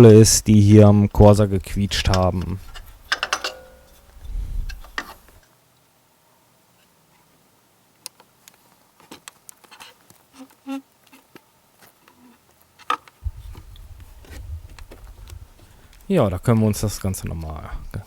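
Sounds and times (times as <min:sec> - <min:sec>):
low hum: 0:01.3 - 0:05.4, 0:13.2 - 0:18.0.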